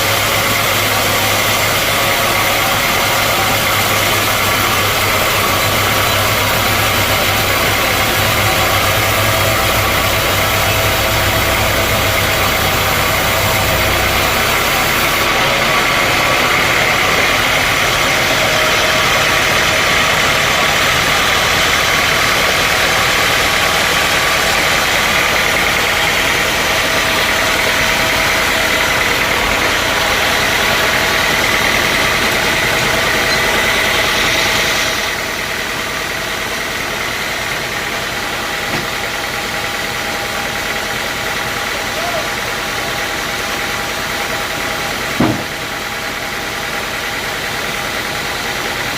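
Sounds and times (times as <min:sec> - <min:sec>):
deep hum: 0:00.0 - 0:36.5
sawmill machinery droning: 0:00.0 - 0:48.9.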